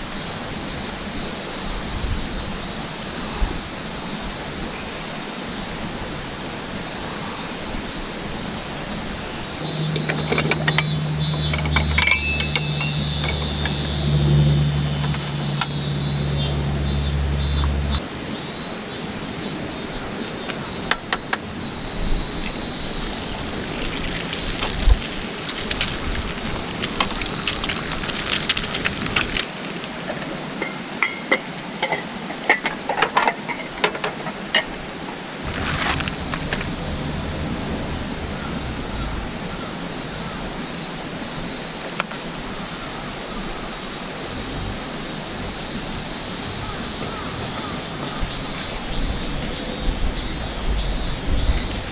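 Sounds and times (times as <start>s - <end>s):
sharp crackles and clicks: 9.2s - 18.0s, 23.1s - 30.3s, 35.4s - 38.2s
mountain stream rushing: 34.2s - 51.9s.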